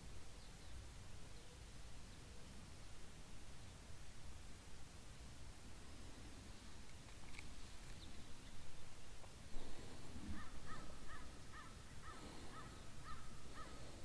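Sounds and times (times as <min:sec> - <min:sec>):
bird calling: 0:07.2 - 0:14.0.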